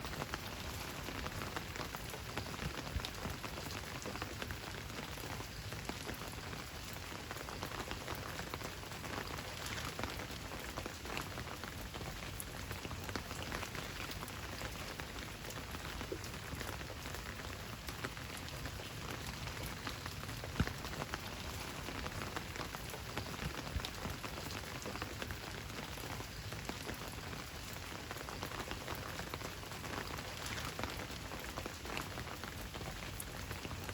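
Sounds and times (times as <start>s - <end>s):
steady rain patter: 0.0s - 33.9s.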